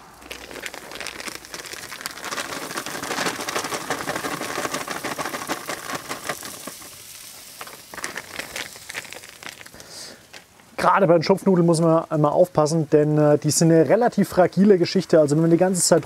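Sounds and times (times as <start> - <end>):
dumplings sizzling in hot fat: 0.0 - 10.8
plastic bag crinkling: 0.0 - 10.8.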